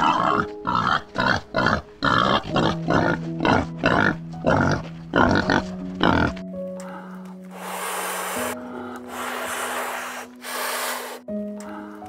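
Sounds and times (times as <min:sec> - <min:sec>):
soft background music: 0:00.0 - 0:12.0
animal making short rough calls: 0:07.5 - 0:11.2.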